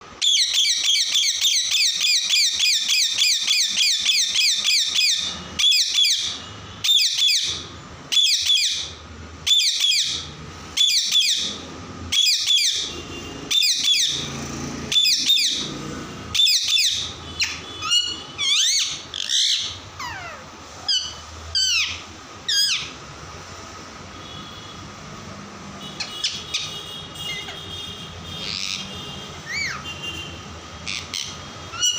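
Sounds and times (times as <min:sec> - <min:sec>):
parrot shrill calls: 0:00.2 - 0:12.9, 0:13.5 - 0:14.3, 0:14.9 - 0:15.7, 0:16.3 - 0:23.0, 0:26.0 - 0:27.6, 0:28.4 - 0:29.9, 0:30.8 - 0:31.9.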